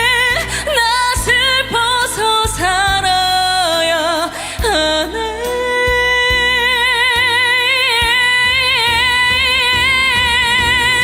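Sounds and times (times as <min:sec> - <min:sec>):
band with bass and drums: 0:00.0 - 0:11.0.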